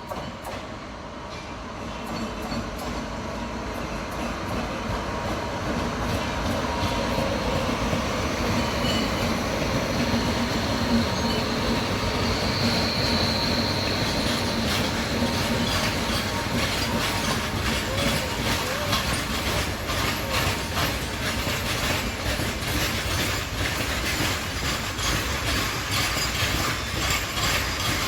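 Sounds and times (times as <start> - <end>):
freight train rumbling on rails: 0.0 - 28.0
high wheel squeal: 6.8 - 23.3.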